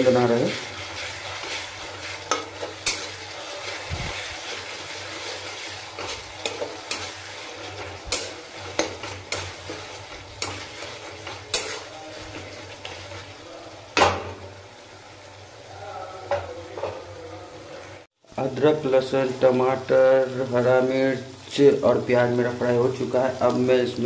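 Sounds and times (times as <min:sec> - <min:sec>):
spatula scraping and knocking pan: 0:00.0 - 0:13.4
masala sizzling in oil: 0:00.0 - 0:24.0.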